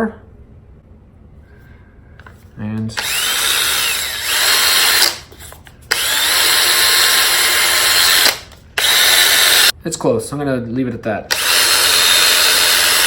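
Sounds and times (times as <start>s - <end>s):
cordless drill whining: 3.0s - 9.7s, 11.3s - 13.0s.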